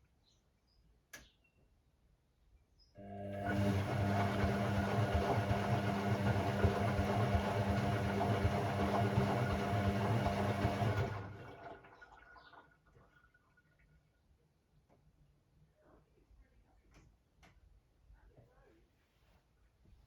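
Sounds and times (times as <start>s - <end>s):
washing machine electric hum: 3.0s - 13.4s.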